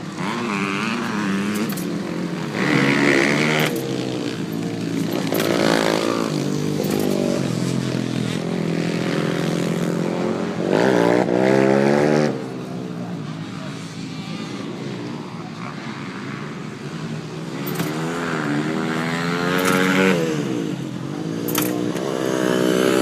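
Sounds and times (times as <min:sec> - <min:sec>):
two-stroke dirt bike engine revving: 0:00.0 - 0:23.0.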